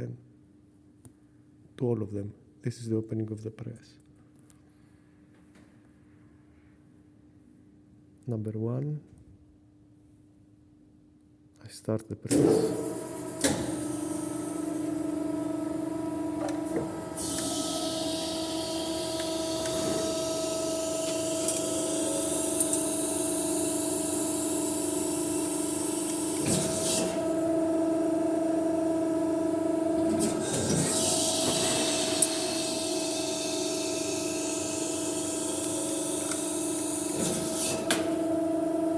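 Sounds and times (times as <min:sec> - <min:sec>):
motor hum: 0:12.6 - 0:38.9.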